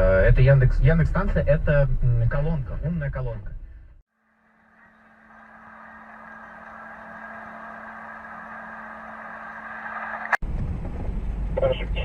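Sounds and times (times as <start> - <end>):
car road and engine noise: 0.0 - 12.0
faint steady hum: 3.7 - 10.4.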